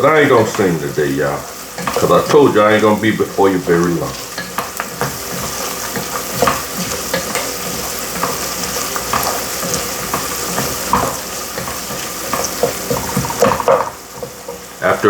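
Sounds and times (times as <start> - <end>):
vegetables sizzling in a pot: 0.0 - 15.0
spoon scraping a pot: 1.5 - 2.1, 4.1 - 14.7.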